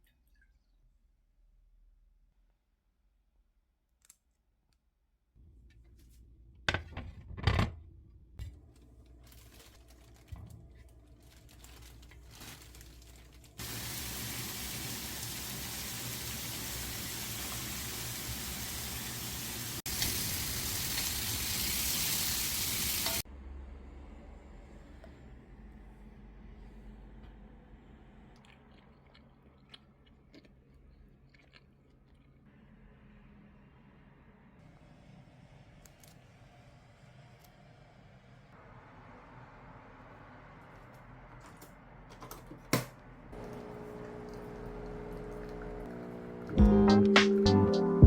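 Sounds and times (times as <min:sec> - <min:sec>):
tap water running: 0:13.6 - 0:23.2, 0:43.4 - 0:47.4.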